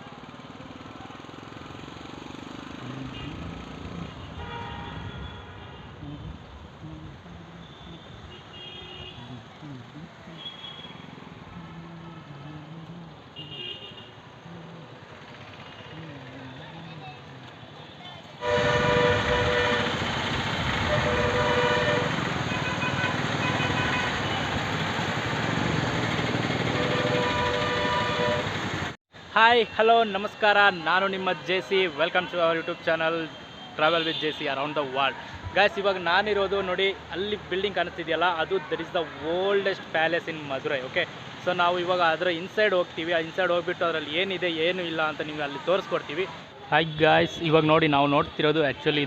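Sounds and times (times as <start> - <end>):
traffic noise: 0.0 - 49.0
vehicle horn blasts: 4.2 - 6.0, 13.4 - 14.2, 18.4 - 20.1, 20.8 - 24.5, 26.7 - 28.6.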